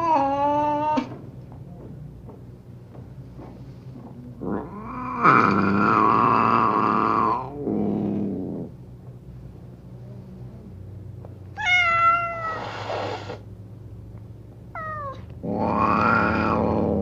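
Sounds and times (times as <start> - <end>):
cat growling: 0.0 - 1.2, 4.4 - 8.8, 11.6 - 13.4, 14.7 - 17.0
cats yowling: 0.0 - 1.2, 4.5 - 7.6, 11.6 - 13.4, 14.7 - 17.0
cat hissing: 11.6 - 13.5, 14.8 - 17.0.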